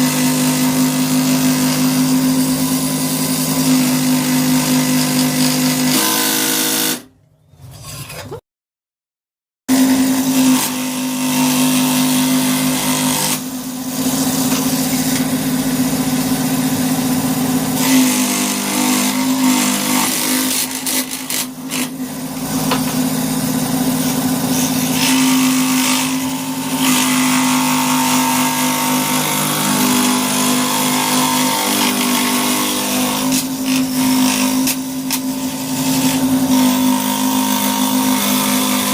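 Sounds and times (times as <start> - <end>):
power tool motor humming: 9.7 - 38.9.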